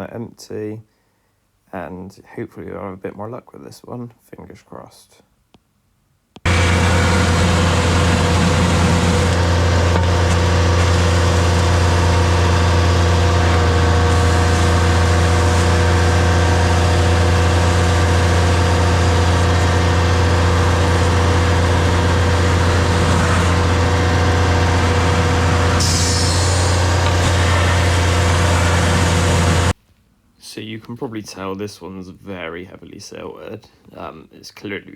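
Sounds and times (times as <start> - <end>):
tanker engine and vacuum pump: 6.5 - 29.8.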